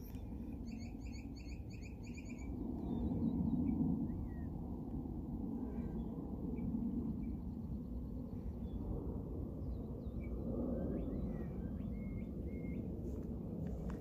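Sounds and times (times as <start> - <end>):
faint bird chirps: 0.0 - 4.5
whistled bird notes: 0.0 - 4.5, 10.9 - 12.9
steady low rumble: 0.0 - 14.0.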